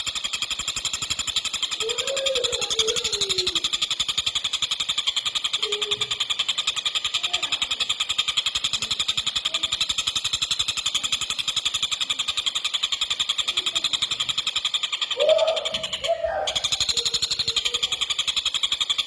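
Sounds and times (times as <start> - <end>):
kingfisher rattling trill: 0.0 - 19.0.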